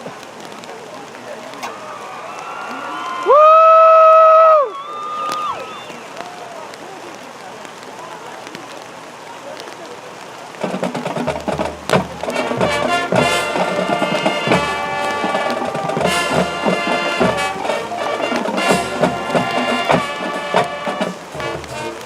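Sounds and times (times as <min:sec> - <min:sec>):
drum hits: 0:10.6 - 0:22.0
brass playing tune: 0:11.9 - 0:22.0.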